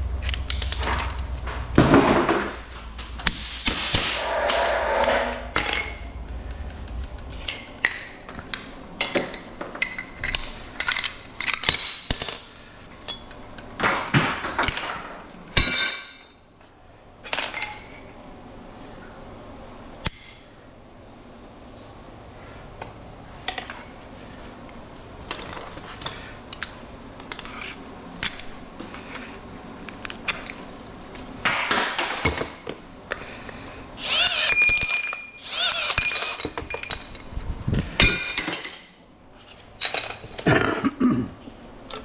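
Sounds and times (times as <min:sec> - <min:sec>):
low hum: 0:00.0 - 0:10.5
metal pieces clanking: 0:00.0 - 0:15.0, 0:34.0 - 0:37.4, 0:39.8 - 0:40.5
aluminum tubing being cut: 0:34.0 - 0:36.5.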